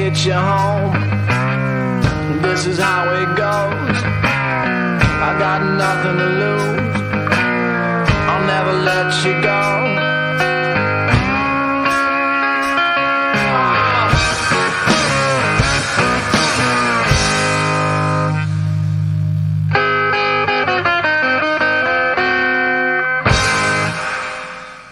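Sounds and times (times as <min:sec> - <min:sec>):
distorted electric guitar: 0:00.0 - 0:24.9
drum hits: 0:00.6 - 0:09.0, 0:10.4 - 0:18.8.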